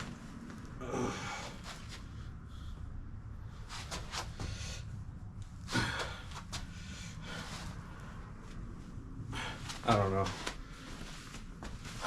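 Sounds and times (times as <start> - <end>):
steady low hum: 0.0 - 12.0
man breathing hard: 0.8 - 8.4, 9.2 - 9.9.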